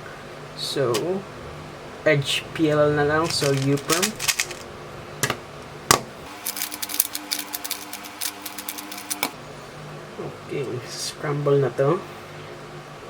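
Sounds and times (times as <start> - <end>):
puzzle cube plastic clicking: 3.3 - 4.6, 6.4 - 9.3.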